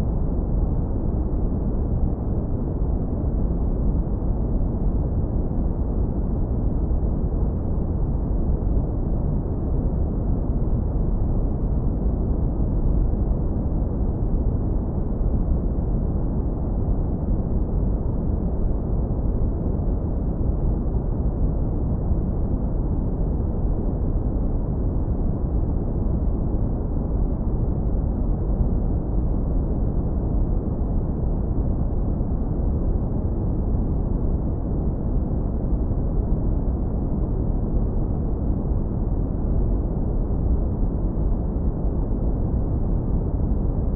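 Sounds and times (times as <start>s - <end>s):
low rumbling brown noise: 0.0s - 43.9s.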